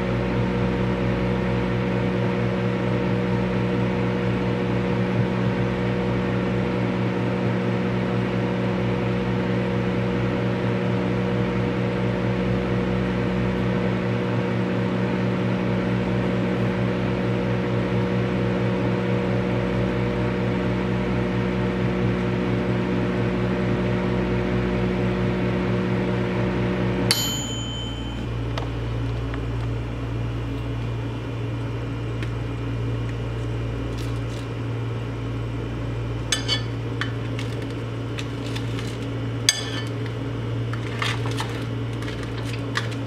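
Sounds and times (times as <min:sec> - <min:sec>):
fan noise: 0:00.0 - 0:43.0
microwave oven humming: 0:00.0 - 0:43.0
microwave bell ding: 0:27.1 - 0:28.4, 0:36.3 - 0:37.1.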